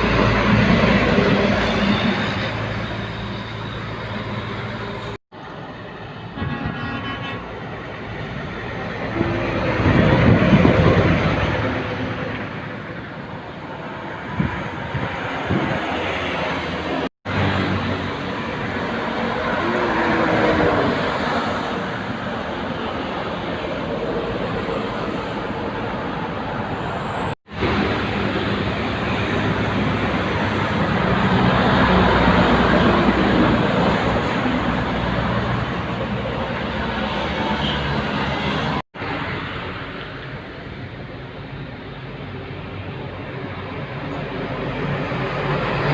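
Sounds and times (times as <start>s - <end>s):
heavy truck passing: 0.0s - 45.9s.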